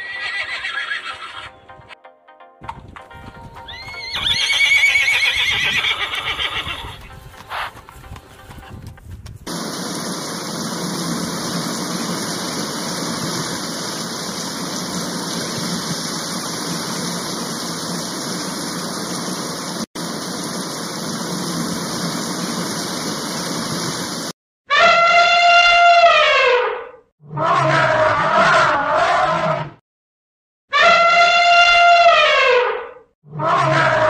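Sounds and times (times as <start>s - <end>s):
steady rushing noise: 6.9s - 24.3s.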